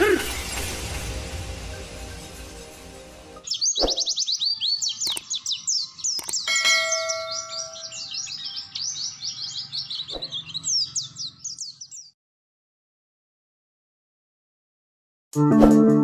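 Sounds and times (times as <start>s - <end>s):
bird chirping rapidly: 3.4s - 12.1s
sharp clicks: 5.0s - 5.3s, 6.1s - 6.5s
bell-like chime: 6.4s - 8.1s.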